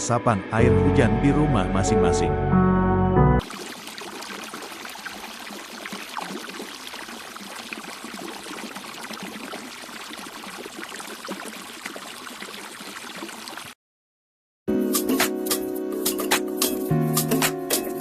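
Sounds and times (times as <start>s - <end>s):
running water rushing: 3.4s - 13.8s.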